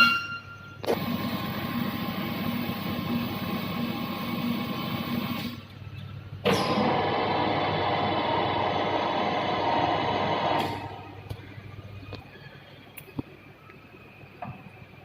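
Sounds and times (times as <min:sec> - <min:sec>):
lathe humming and whining: 0:00.8 - 0:05.6, 0:06.5 - 0:12.8.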